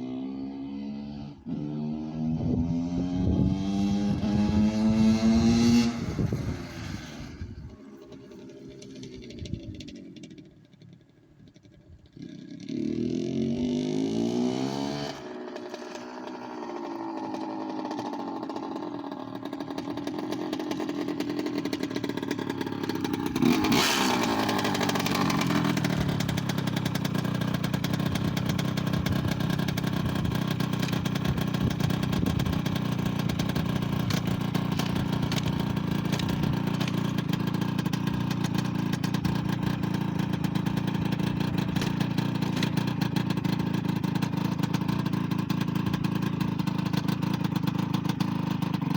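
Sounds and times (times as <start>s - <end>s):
two-stroke engine revving: 0.0s - 10.8s, 11.6s - 48.9s.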